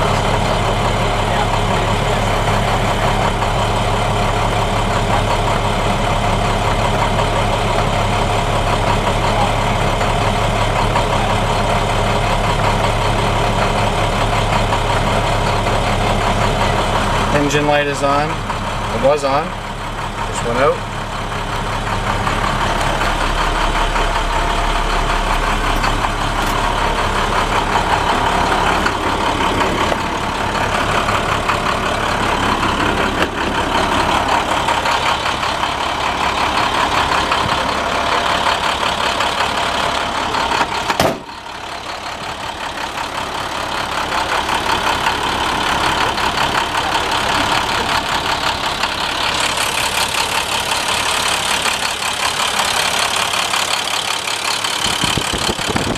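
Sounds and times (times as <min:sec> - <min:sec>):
diesel truck engine idling: 0:00.0 - 0:55.9
sharp knock: 0:40.9 - 0:41.3.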